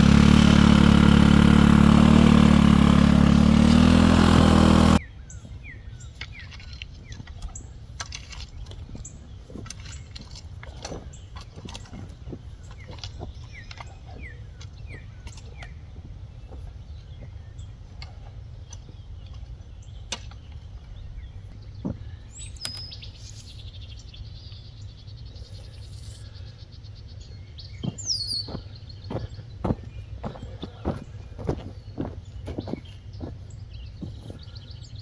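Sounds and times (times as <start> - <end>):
birds chirping: 0.0 - 35.0
bird ticking trill: 27.7 - 29.4.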